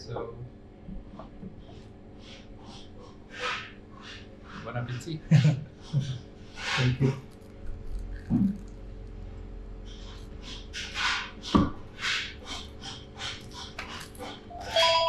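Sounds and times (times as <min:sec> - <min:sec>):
crispy food crunching: 0:07.1 - 0:09.2, 0:13.3 - 0:14.4.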